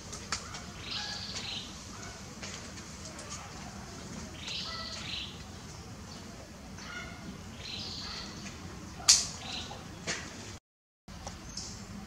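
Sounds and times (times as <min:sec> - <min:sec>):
outdoor background noise: 0:00.0 - 0:12.0
birds chirping: 0:00.4 - 0:02.3, 0:03.6 - 0:10.4.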